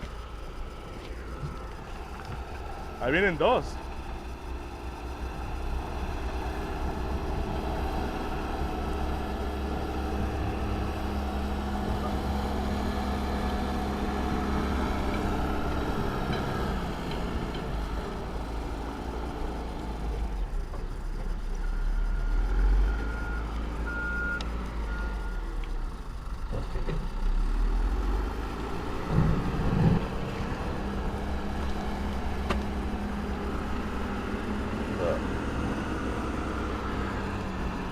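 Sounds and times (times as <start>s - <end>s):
heavy vehicle engine rumble: 0.0s - 37.9s
reversing alarm beeping: 21.6s - 25.6s.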